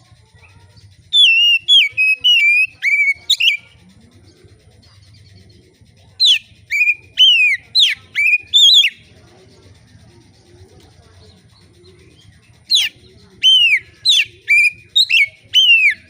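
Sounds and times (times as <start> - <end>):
bird singing whistled notes: 0.7 - 9.1, 11.3 - 16.0.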